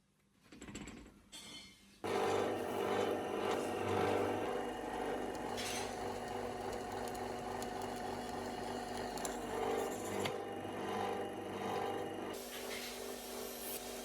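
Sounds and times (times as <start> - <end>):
small electric motor humming: 2.1 - 12.4.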